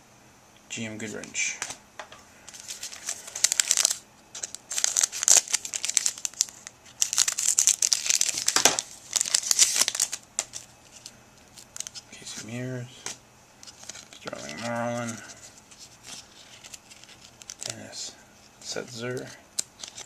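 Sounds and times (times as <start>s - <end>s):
foil wrapper crinkling: 2.5s - 12.1s, 13.6s - 17.9s, 18.6s - 20.0s.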